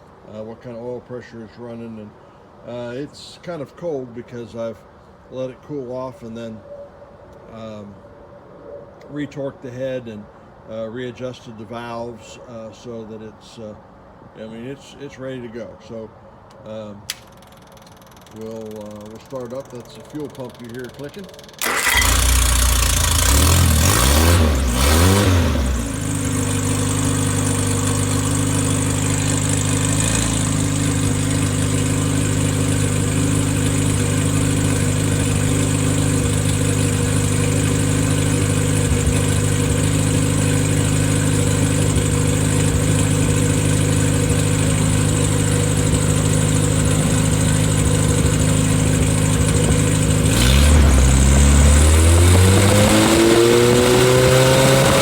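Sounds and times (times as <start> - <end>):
car engine cranking and running: 17.1 - 55.0
car engine revving: 21.6 - 55.0.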